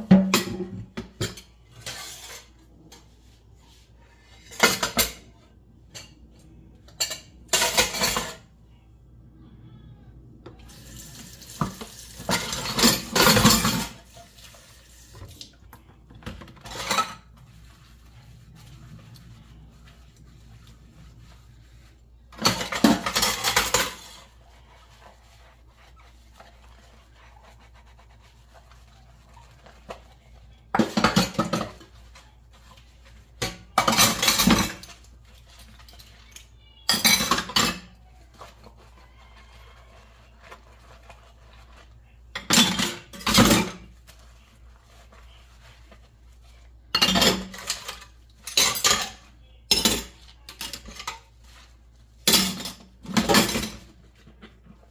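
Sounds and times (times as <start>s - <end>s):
dishes and cutlery clattering: 4.4s - 6.2s, 6.9s - 8.5s, 11.6s - 14.4s, 16.2s - 17.5s, 22.3s - 24.4s, 29.2s - 32.6s, 33.4s - 38.5s, 42.3s - 44.2s, 46.9s - 51.6s, 52.2s - 54.6s.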